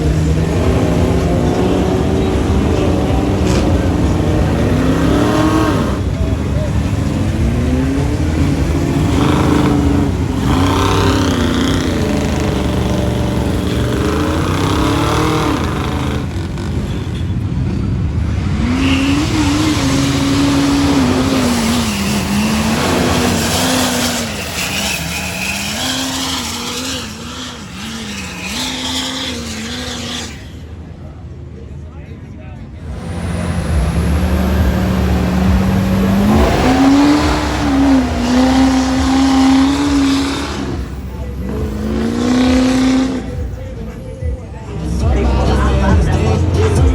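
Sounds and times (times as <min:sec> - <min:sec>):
truck engine revving: 0:00.0 - 0:31.0, 0:32.7 - 0:46.9
steady rushing noise: 0:32.7 - 0:43.6.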